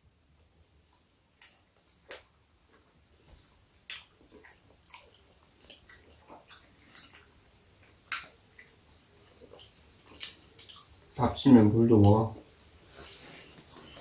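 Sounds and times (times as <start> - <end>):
people chewing: 0.8 - 11.1.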